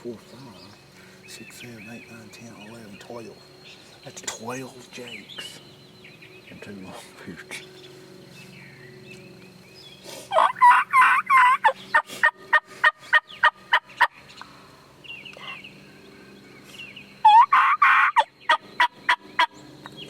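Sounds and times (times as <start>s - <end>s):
turkey gobbling: 10.3s - 14.2s, 17.2s - 19.6s.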